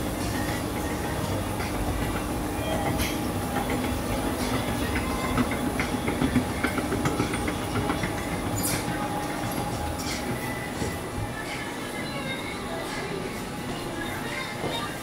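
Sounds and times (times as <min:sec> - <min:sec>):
wheels clicking and knocking: 0:00.0 - 0:11.5
train rumbling on rails: 0:00.0 - 0:15.0.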